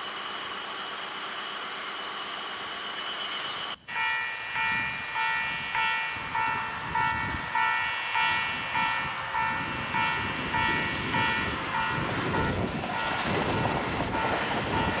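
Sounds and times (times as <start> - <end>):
train rumbling: 0.0 - 15.0
level crossing warning bell ringing: 3.7 - 13.3, 14.0 - 15.0.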